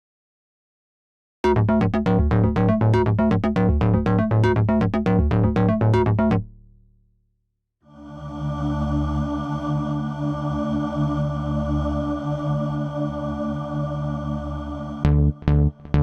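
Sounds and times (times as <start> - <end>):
synthesizer plucked note pattern: 1.4 - 6.7
synth bass line: 1.4 - 6.8, 15.0 - 16.0.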